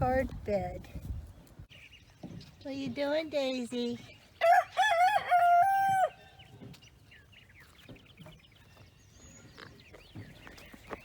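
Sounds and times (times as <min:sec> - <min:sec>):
rooster crowing: 0:04.4 - 0:06.3.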